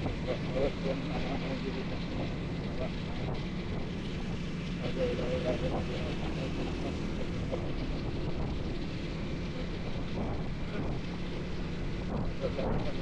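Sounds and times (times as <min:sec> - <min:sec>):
motorcycle engine hum: 0:00.0 - 0:13.0
road noise: 0:00.0 - 0:13.0
wind noise on microphone: 0:05.7 - 0:13.0.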